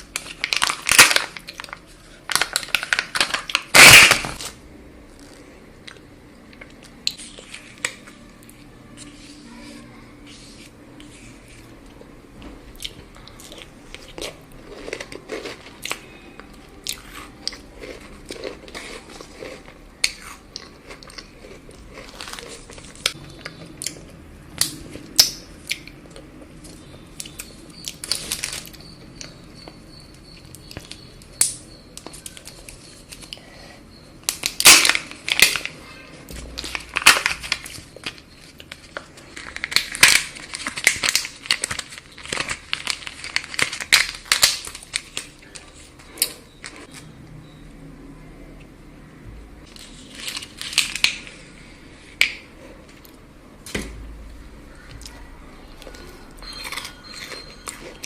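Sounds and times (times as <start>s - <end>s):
wrapper crinkling: 0.0s - 4.6s, 21.9s - 23.2s, 28.0s - 28.8s, 36.4s - 45.9s, 49.7s - 51.3s
chocolate crunching: 0.0s - 9.4s, 12.7s - 33.5s, 34.2s - 47.0s, 49.6s - 51.5s, 54.8s - 58.0s.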